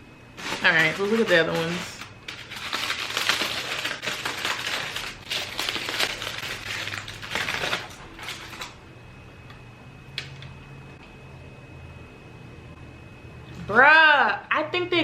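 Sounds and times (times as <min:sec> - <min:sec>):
food packaging crinkling: 0:00.4 - 0:08.8.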